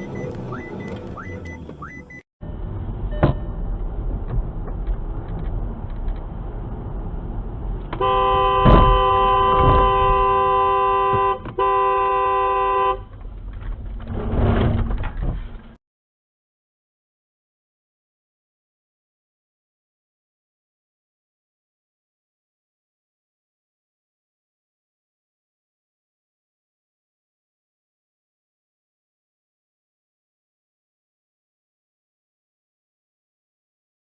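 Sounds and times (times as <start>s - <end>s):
road and engine noise: 0.0s - 15.8s
car horn long blast: 8.0s - 13.1s.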